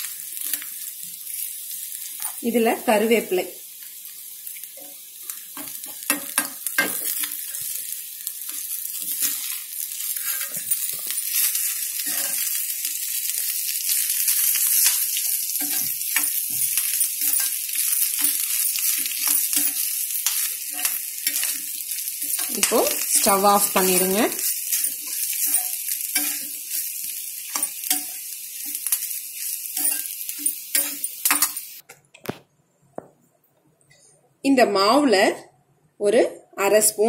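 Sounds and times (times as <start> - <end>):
food sizzling in pan: 0.0 - 31.8
steel ladle scraping pan: 9.0 - 12.6, 15.6 - 26.6.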